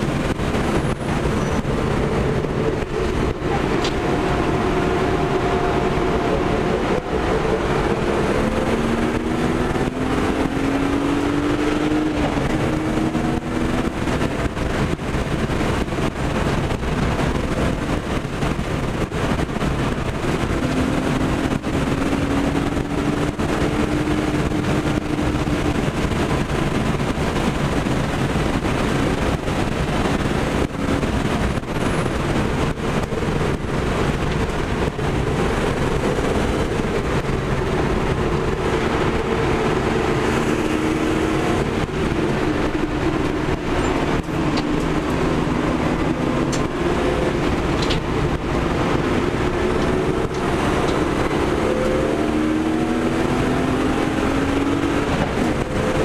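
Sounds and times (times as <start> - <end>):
car engine accelerating: 0.0 - 56.0
road and wind noise: 0.0 - 56.0.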